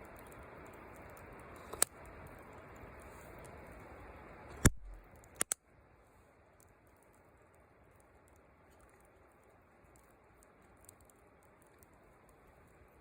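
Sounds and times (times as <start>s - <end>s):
steady hiss: 0.0s - 13.0s
sharp clicks: 4.5s - 5.6s.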